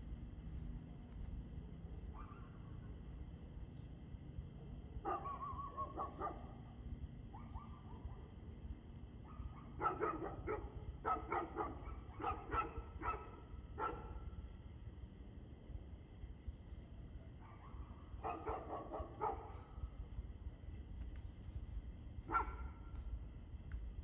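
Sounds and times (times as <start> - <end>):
dog barking: 2.1 - 2.9, 5.0 - 6.6, 7.3 - 8.3, 9.2 - 14.2, 17.4 - 19.9, 22.3 - 22.9.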